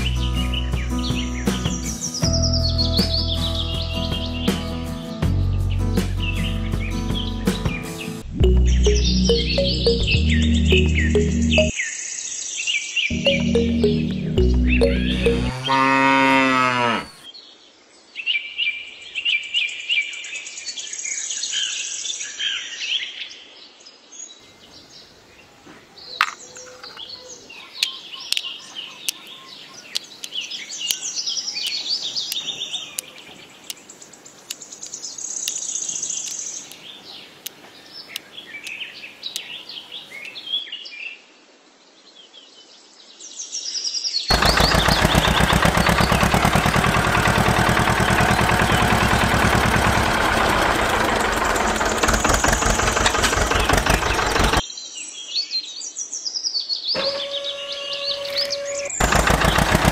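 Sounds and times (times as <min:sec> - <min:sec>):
birds chirping and singing: 0:00.0 - 0:17.4, 0:24.2 - 0:41.0, 0:43.5 - 0:59.9
loud engine: 0:13.1 - 0:17.3, 0:44.3 - 0:54.6, 0:58.0 - 0:59.9.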